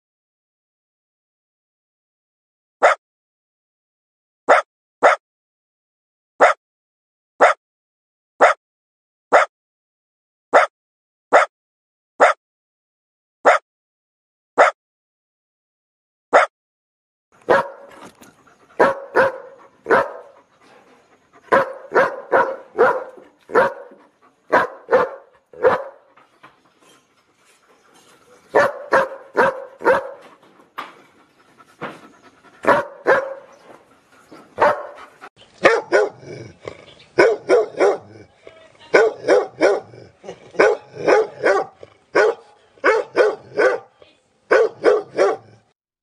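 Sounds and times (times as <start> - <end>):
dog barking: 4.5 - 5.2, 6.4 - 6.6, 7.4 - 7.6, 8.4 - 8.6, 9.3 - 9.5, 10.5 - 10.7, 11.3 - 11.5, 12.2 - 12.4, 13.4 - 13.6, 16.3 - 16.5, 17.5 - 18.0, 18.8 - 20.4, 21.5 - 26.1, 28.5 - 30.3, 32.6 - 33.5, 34.6 - 35.0, 35.6 - 36.5, 37.2 - 45.7.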